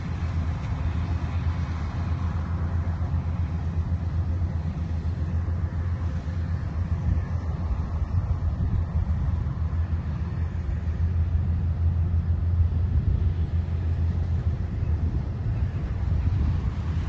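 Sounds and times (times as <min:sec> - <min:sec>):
harvester engine rumbling: 0:00.0 - 0:17.0.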